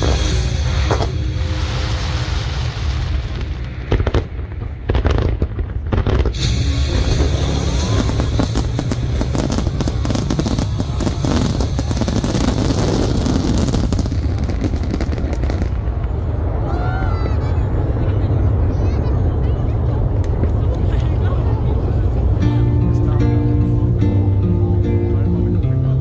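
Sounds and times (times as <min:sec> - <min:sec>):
fireworks bangs: 0:00.0 - 0:22.2
rapid fireworks crackle: 0:00.0 - 0:22.4
low rumble: 0:00.0 - 0:26.0.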